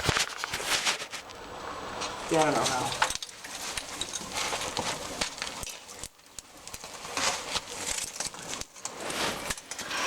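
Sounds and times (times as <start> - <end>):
ice crunching and scraping: 0.0 - 1.3, 2.0 - 10.0
bits of ice falling: 2.3 - 10.0.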